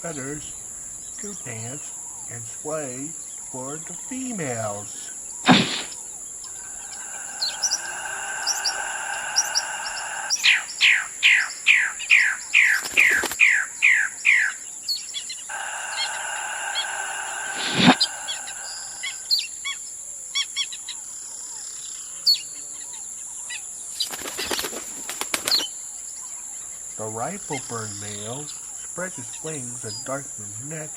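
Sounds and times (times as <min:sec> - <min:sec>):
bird chirps: 0:00.0 - 0:19.6
sharp snaps: 0:05.5 - 0:10.7, 0:15.5 - 0:19.3
bird buzzing note: 0:15.6 - 0:19.4.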